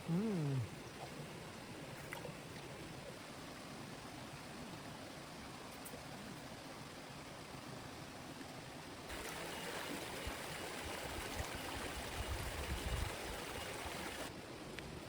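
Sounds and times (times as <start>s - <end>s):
flowing water: 0.0s - 14.4s
heavy rain: 9.1s - 14.3s.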